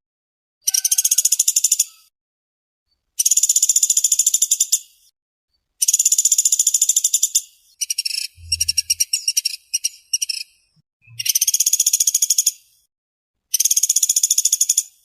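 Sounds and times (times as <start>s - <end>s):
woodpecker rattling trills: 5.8s - 10.4s
low rumble: 8.4s - 9.1s.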